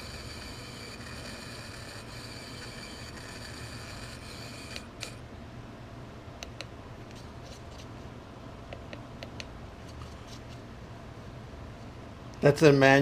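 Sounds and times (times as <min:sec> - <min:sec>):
servo whining: 0:00.0 - 0:05.2
steady low hum: 0:00.0 - 0:13.0.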